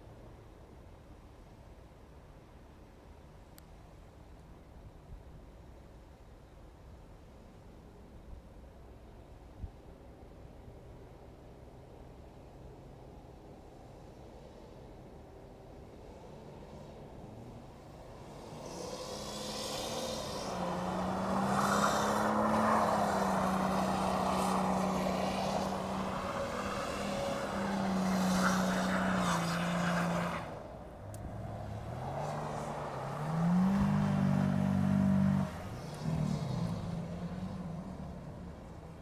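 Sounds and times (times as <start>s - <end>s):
car engine revving hard: 18.4s - 30.5s, 31.3s - 38.1s.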